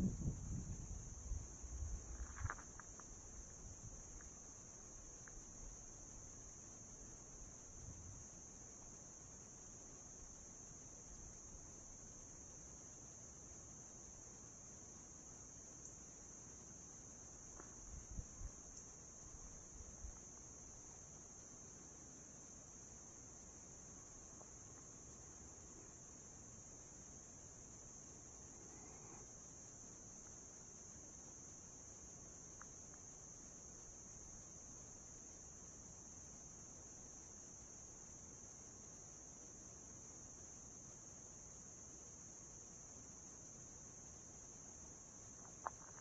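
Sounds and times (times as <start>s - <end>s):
faint low thumps: 0.0s - 2.4s
insects trilling: 0.0s - 46.0s.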